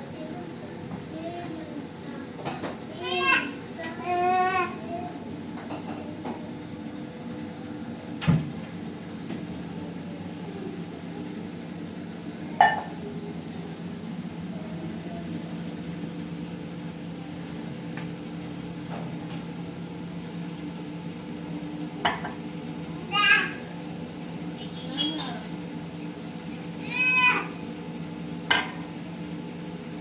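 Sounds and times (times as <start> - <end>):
kitchenware clinking: 12.6 - 13.0, 24.6 - 25.6.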